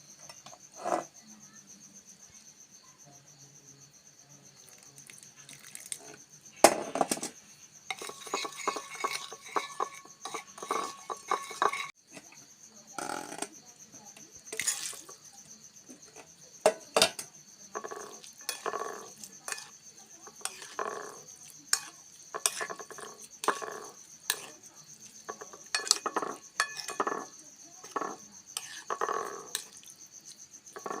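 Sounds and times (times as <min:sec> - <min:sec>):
crickets chirping: 0:00.0 - 0:31.0
cutlery clinking on a dish: 0:07.9 - 0:12.0, 0:16.1 - 0:29.9, 0:30.7 - 0:31.0.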